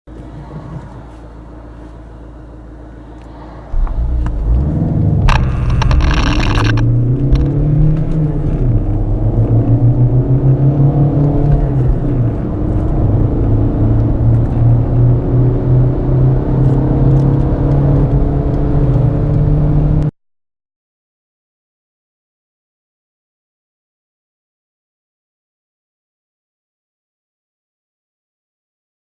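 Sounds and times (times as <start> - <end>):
diesel car engine accelerating: 0.1 - 20.1.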